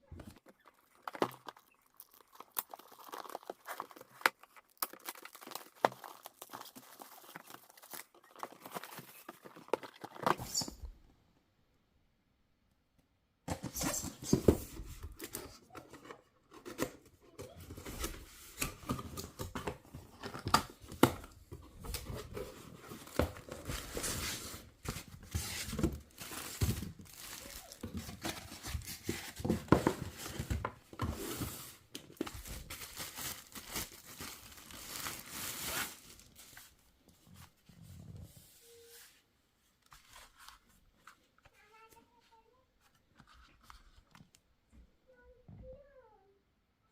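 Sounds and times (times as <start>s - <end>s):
packaging rustling and tearing: 0.4s - 10.5s, 21.8s - 36.7s.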